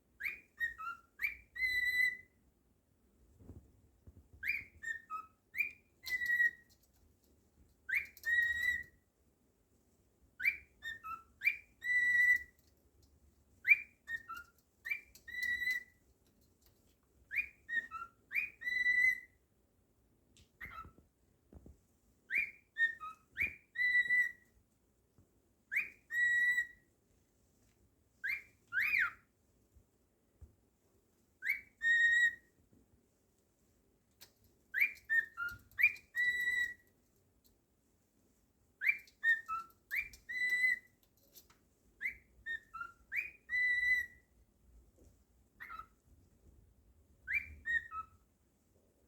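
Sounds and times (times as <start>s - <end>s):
cockatiel whistling a tune: 0.2s - 2.4s, 4.4s - 6.8s, 7.8s - 9.0s, 10.4s - 12.7s, 13.6s - 16.0s, 17.3s - 19.4s, 20.6s - 21.0s, 22.3s - 24.5s, 25.7s - 26.9s, 28.2s - 29.3s, 31.4s - 32.6s, 34.7s - 36.9s, 38.8s - 41.4s, 42.0s - 44.3s, 45.6s - 46.0s, 47.2s - 48.2s.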